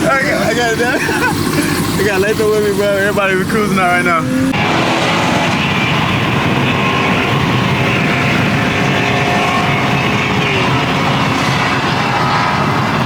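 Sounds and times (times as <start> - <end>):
car engines and exhaust: 0.0 - 13.0.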